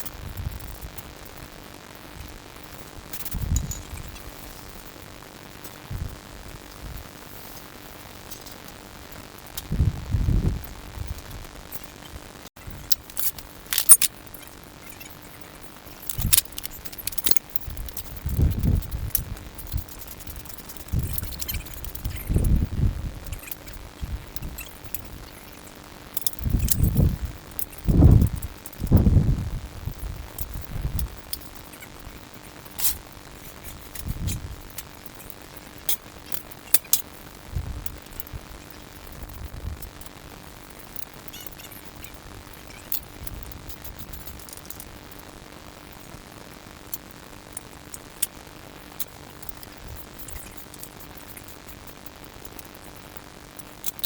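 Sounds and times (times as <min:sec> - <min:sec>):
faint steady hum: 0:00.0 - 0:54.0
metal tools clinking: 0:03.3 - 0:04.2, 0:12.8 - 0:15.2, 0:15.9 - 0:22.5, 0:26.2 - 0:28.2.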